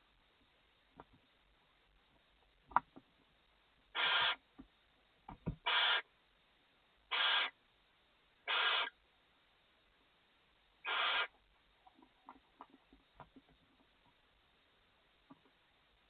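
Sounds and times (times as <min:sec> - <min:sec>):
owl rasping hiss calls: 0:03.9 - 0:04.4, 0:05.6 - 0:06.1, 0:07.1 - 0:07.6, 0:08.4 - 0:09.0, 0:10.8 - 0:11.4.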